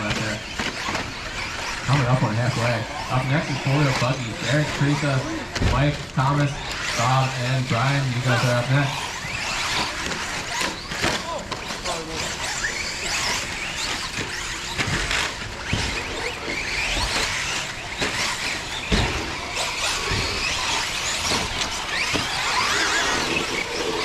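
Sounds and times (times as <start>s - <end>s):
rc car motors whining: 0.0s - 24.0s
thumps of landings: 14.0s - 24.0s.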